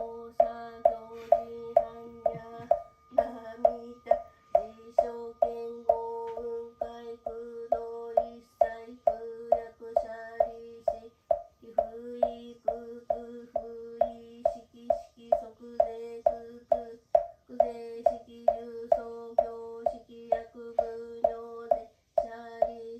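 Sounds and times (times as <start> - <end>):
woman chanting in monotone: 0.0 - 22.9
wooden fish drum struck: 7.8 - 22.8.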